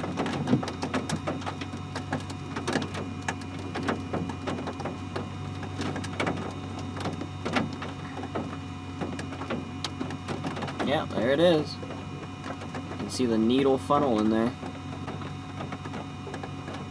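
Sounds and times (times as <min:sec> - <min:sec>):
vehicle engine idling hum: 0:00.0 - 0:16.9.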